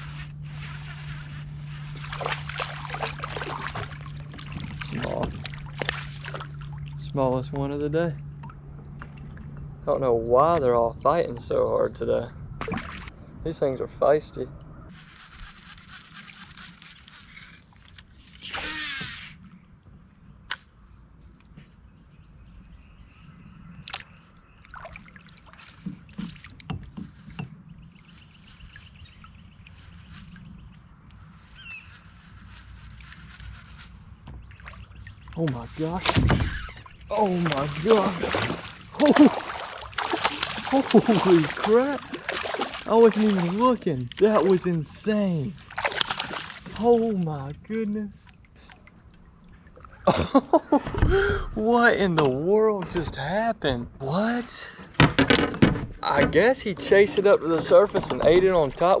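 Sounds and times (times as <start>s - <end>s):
water splashing and dripping: 0.0s - 7.7s, 23.8s - 27.4s, 34.2s - 47.0s, 47.6s - 50.0s
steady low hum: 0.0s - 51.8s
wind rumbling on microphone: 25.6s - 39.7s
knocks from handling fishing gear: 55.0s - 56.4s.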